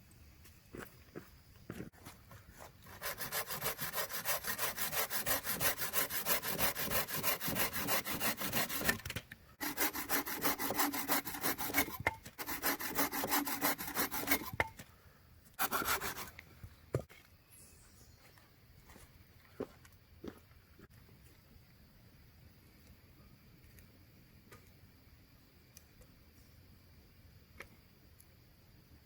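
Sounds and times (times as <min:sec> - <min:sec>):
hand saw cutting wood: 0:02.8 - 0:14.8, 0:15.6 - 0:16.3.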